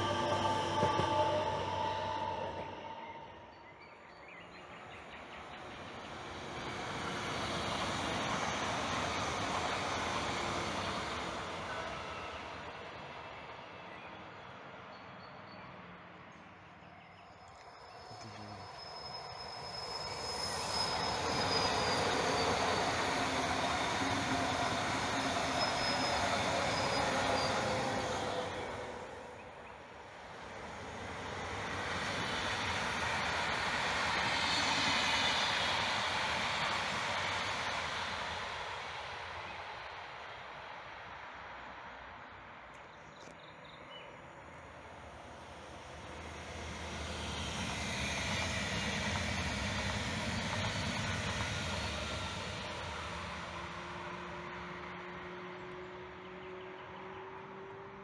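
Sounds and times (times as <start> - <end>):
high wheel squeal: 0.0 - 3.6, 17.4 - 29.5, 31.5 - 37.2
trains rushing by: 0.0 - 42.9, 43.6 - 58.0.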